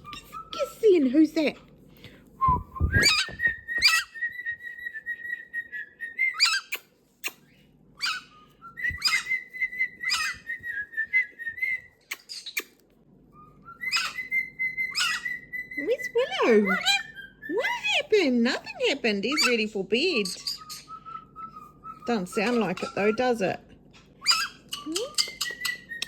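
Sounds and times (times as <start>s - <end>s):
parrot whistling: 2.4s - 12.7s, 13.4s - 17.6s, 19.3s - 23.3s, 24.2s - 26.0s.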